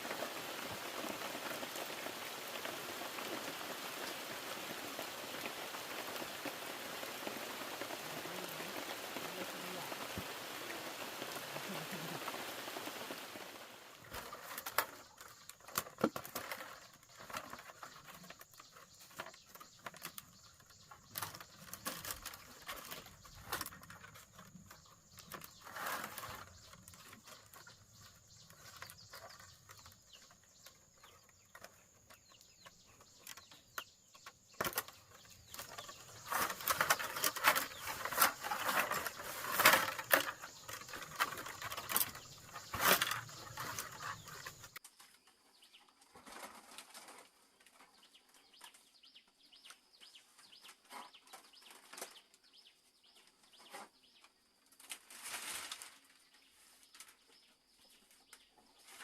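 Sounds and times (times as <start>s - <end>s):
rain-like hiss: 0.0s - 15.8s, 20.4s - 44.8s
sharp clicks and rustling: 14.0s - 45.0s.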